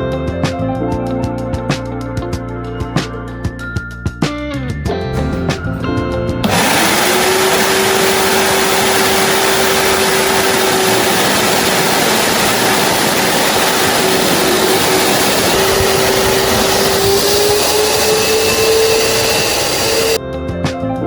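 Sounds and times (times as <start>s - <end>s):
vacuum cleaner running: 6.4s - 20.2s.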